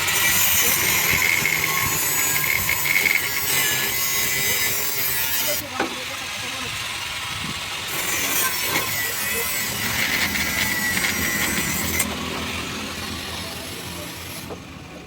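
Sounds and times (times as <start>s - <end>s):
cutting tool rasping: 0.0s - 6.4s, 7.4s - 12.2s.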